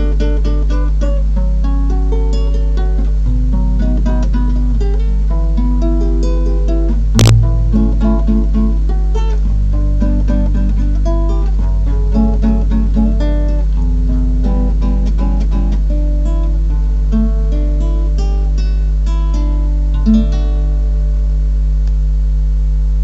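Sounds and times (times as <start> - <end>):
acoustic guitar playing: 0.0 - 21.4
steady low hum: 0.0 - 23.0.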